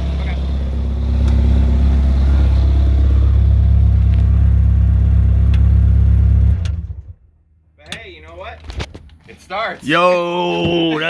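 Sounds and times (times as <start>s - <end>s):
engine idling with rattle: 0.0s - 7.3s.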